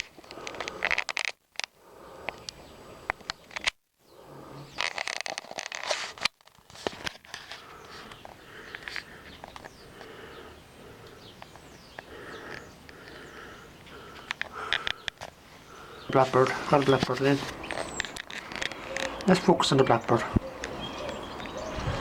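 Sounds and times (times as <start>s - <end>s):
sharp clicks: 0.0s - 3.8s, 11.0s - 21.6s
outdoor background noise: 0.0s - 22.0s
birds chirping: 1.8s - 5.1s, 7.2s - 22.0s.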